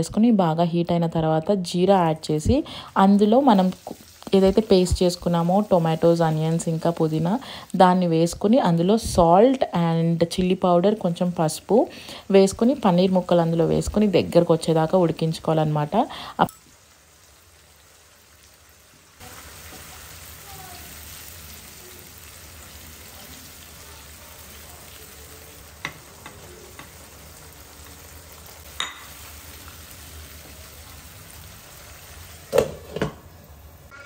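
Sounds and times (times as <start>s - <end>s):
food sizzling in oil: 1.0s - 34.0s
spatula tapping on pan: 25.8s - 27.0s.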